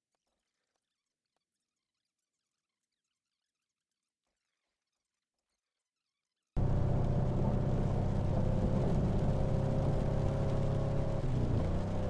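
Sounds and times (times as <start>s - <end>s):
vehicle engine running: 6.6s - 12.0s.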